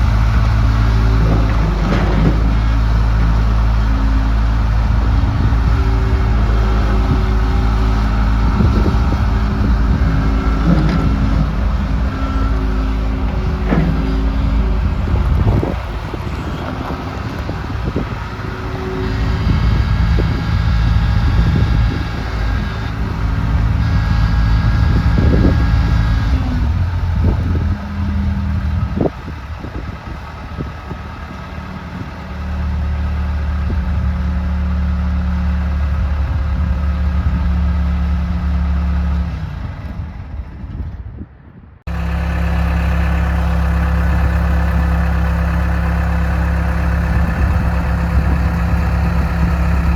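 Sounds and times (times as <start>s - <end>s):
diesel engine running: 0.0s - 40.7s, 41.8s - 49.9s.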